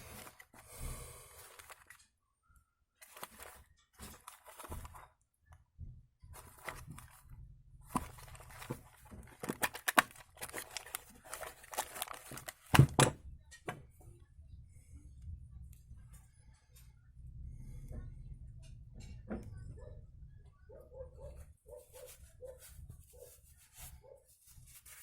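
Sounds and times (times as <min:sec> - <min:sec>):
scraping and rustling: 0:21.4 - 0:25.0.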